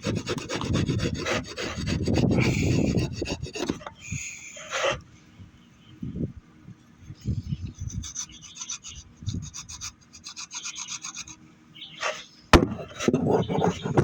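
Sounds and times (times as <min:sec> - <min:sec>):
rasp scraping wood: 0:00.0 - 0:05.0, 0:07.6 - 0:11.4, 0:12.0 - 0:14.0
sharp knock: 0:12.5 - 0:12.9.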